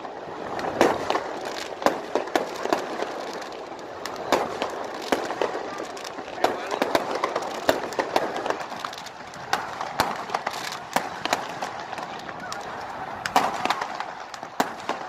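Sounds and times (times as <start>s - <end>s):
fireworks cracking and popping: 0.0s - 15.0s.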